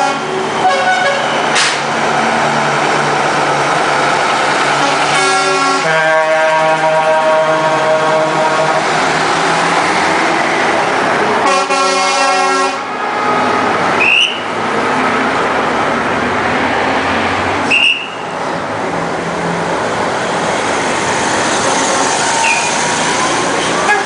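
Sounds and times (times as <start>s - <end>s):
truck horn blast: 0.0s - 1.8s, 4.8s - 8.9s, 11.4s - 12.9s
truck engines running: 0.0s - 24.0s.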